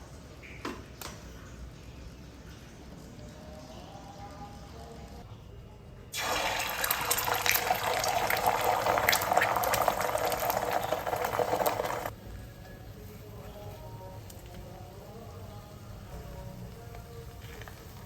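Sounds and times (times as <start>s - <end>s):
tap water gushing: 6.2s - 12.1s.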